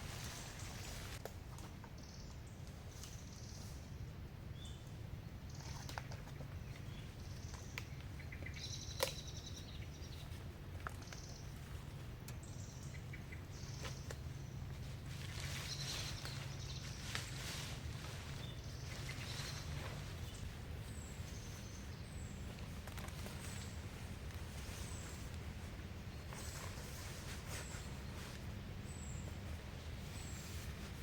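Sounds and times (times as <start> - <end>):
steady low hum: 0.0 - 31.0
bird or insect chirps: 6.8 - 10.2.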